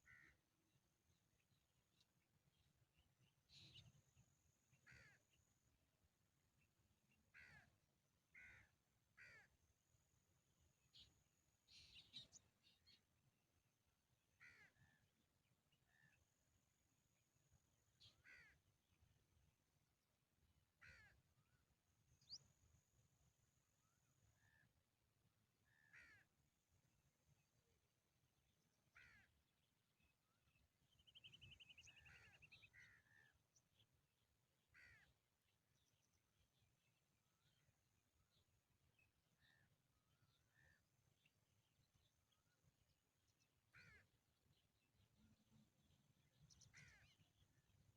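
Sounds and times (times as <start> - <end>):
faint short bird calls: 0.0 - 0.4, 3.5 - 4.1, 4.7 - 5.5, 7.3 - 9.6, 10.9 - 13.0, 14.4 - 15.1, 18.0 - 18.6, 20.8 - 21.6, 25.6 - 26.3, 28.9 - 29.4, 30.0 - 33.4, 34.7 - 35.2, 39.0 - 41.3, 43.7 - 44.2, 45.1 - 47.6
faint harsh bird call: 4.8 - 5.3, 8.3 - 9.5, 18.0 - 18.6, 25.7 - 26.3, 28.9 - 29.3, 31.1 - 33.4, 34.7 - 35.1, 43.7 - 44.1, 46.5 - 47.4
bird chirps: 29.6 - 33.9.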